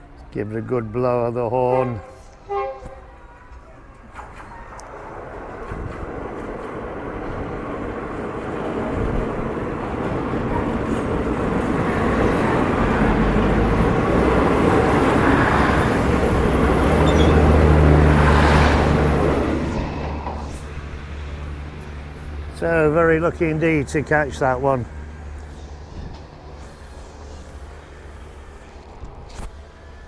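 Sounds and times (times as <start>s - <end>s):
diesel train passing: 0.0s - 30.0s
low engine drone: 11.1s - 30.0s.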